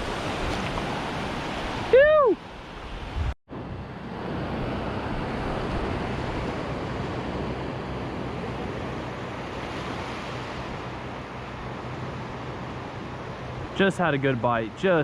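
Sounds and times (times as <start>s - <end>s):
wind rumbling on microphone: 0.0s - 13.8s
surf washing onto beach: 0.0s - 14.8s.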